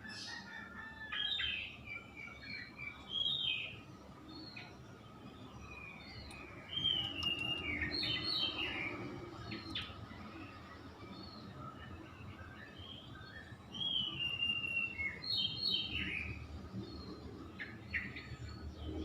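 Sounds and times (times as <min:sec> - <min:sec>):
songbird whistling and chattering: 0:06.3 - 0:08.8.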